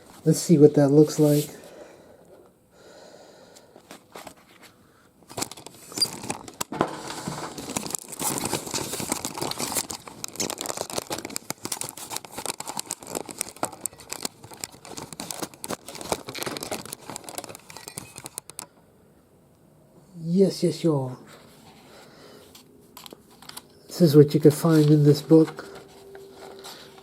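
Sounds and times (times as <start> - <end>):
plastic wrapping crinkling: 5.3 - 18.7, 22.6 - 27.0.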